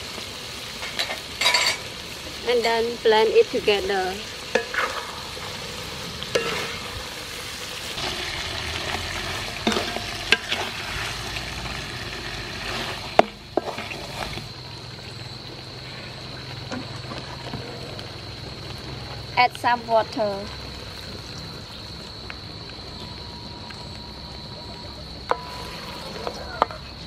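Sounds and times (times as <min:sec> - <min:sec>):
food sizzling in a wok: 0:00.0 - 0:27.0
spatula knocking and scraping pan: 0:06.3 - 0:06.8, 0:09.6 - 0:10.7.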